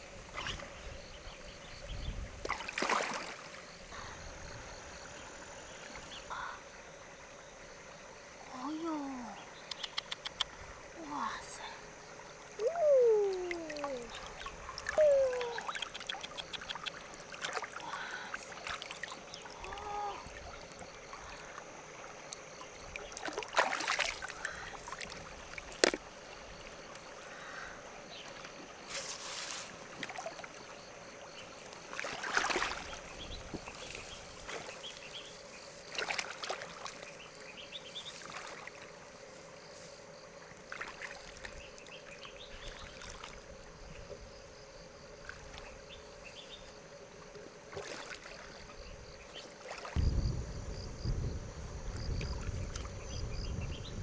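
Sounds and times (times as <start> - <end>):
shallow water splashing: 2.4 - 3.8, 13.3 - 27.4, 28.2 - 39.1, 40.6 - 42.0, 47.3 - 50.0.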